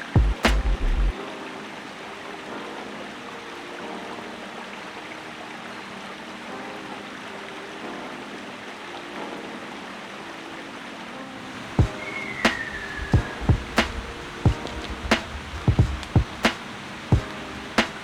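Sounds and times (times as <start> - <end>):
steady rushing noise: 11.5 - 18.0.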